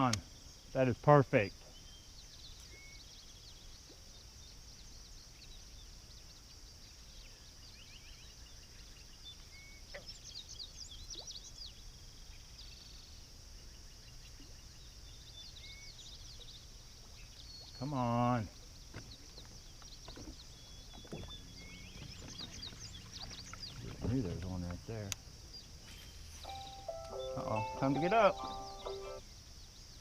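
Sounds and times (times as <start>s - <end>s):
insect chorus: 0.0s - 30.0s
birds chirping: 13.6s - 29.8s.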